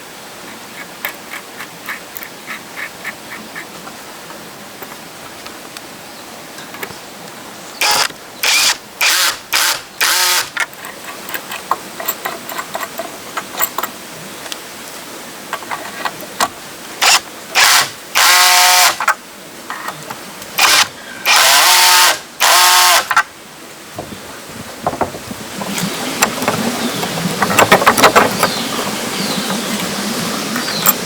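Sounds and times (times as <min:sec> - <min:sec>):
power tool whining in bursts: 0:07.8 - 0:10.6, 0:17.0 - 0:19.0, 0:20.6 - 0:23.2.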